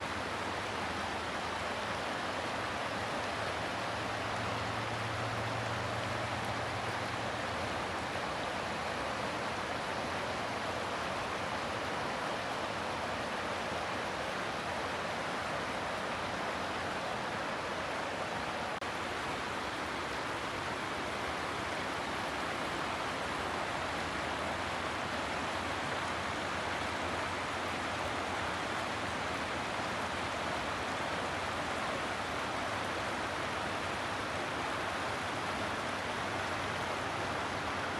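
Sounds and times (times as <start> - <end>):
rushing water: 0.0 - 37.9.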